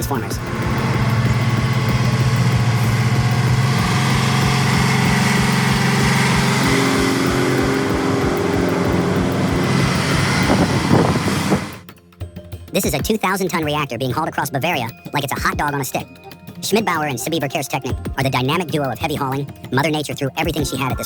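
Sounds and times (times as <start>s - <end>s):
truck diesel engine running: 0.0s - 11.8s.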